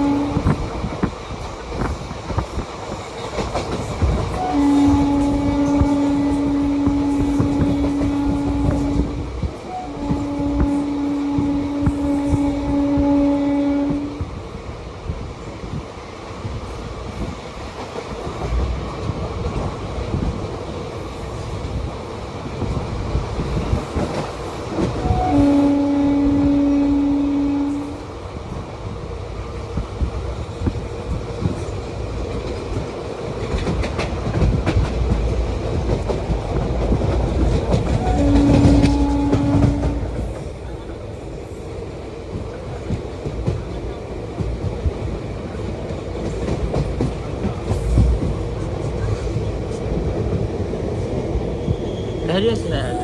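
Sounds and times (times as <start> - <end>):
train horn: 0.0 - 0.9, 4.1 - 14.4, 24.8 - 28.2, 37.5 - 40.8
train wheels clacking on rails: 0.0 - 52.6.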